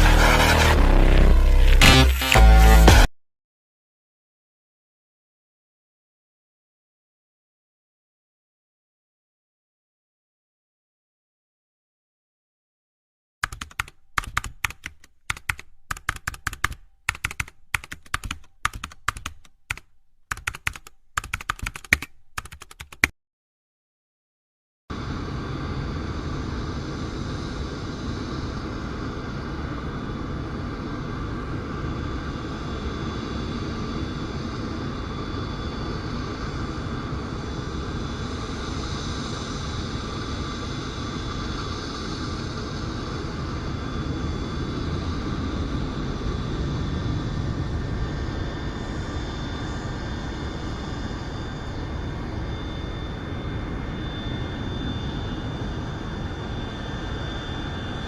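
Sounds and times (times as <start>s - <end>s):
keyboard typing clicks: 13.4s - 23.1s.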